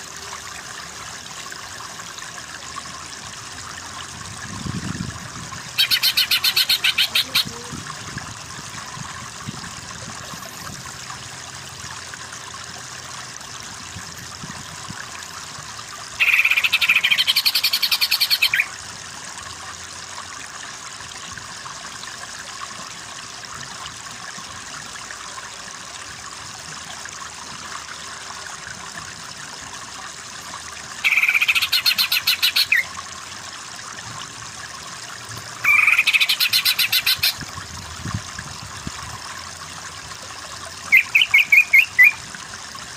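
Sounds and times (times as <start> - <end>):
bird chattering song: 5.8 - 7.6, 16.2 - 18.7, 31.0 - 32.9, 35.6 - 37.3, 40.9 - 42.2.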